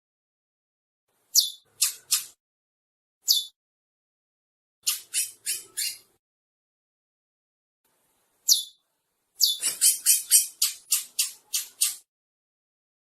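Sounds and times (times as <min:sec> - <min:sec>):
finch singing: 0:01.3 - 0:02.4, 0:03.2 - 0:03.6, 0:04.8 - 0:06.2, 0:08.5 - 0:08.8, 0:09.4 - 0:12.1.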